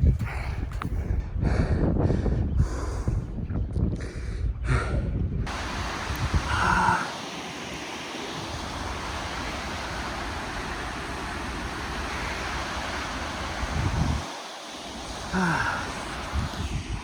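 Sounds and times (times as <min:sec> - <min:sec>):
wind buffeting the microphone: 0:00.0 - 0:17.0
waterfall roaring: 0:05.5 - 0:17.0.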